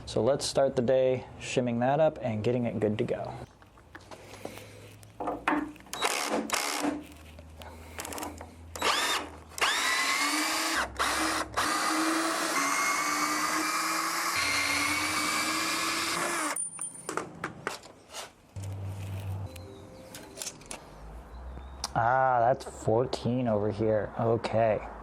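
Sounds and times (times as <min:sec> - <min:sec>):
power drill running: 0:06.0 - 0:06.9, 0:08.8 - 0:16.6.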